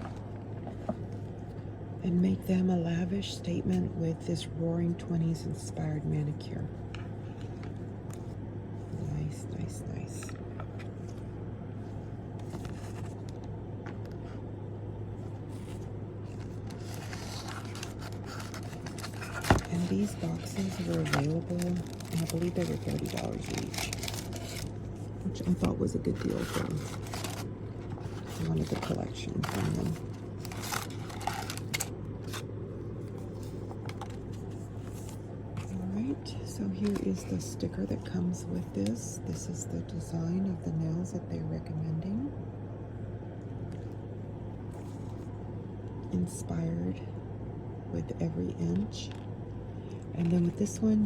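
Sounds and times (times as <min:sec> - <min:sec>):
low background hum: 0:00.0 - 0:51.0
hands handling packaging: 0:15.3 - 0:32.5, 0:33.1 - 0:35.8.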